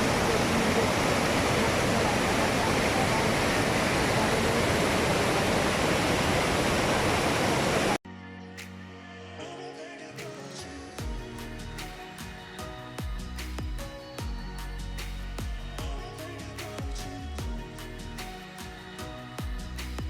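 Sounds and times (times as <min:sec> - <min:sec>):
water rushing over rocks: 0:00.0 - 0:08.0
background music: 0:08.0 - 0:20.0.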